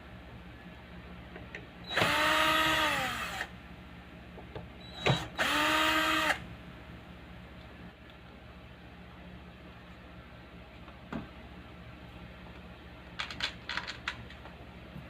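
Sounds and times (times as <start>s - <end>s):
steady low hum: 0.0s - 15.0s
power drill motor whine: 1.8s - 3.5s, 4.8s - 6.4s.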